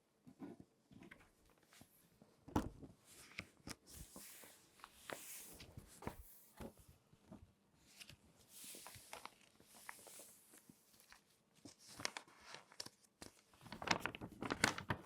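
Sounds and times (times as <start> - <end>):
magazine pages crinkling: 8.0 - 15.0.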